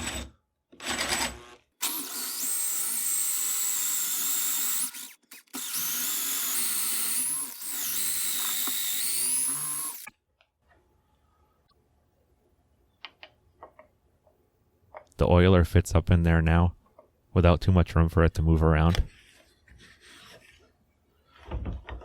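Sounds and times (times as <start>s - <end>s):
electric drill boring into wood: 0.0s - 10.1s.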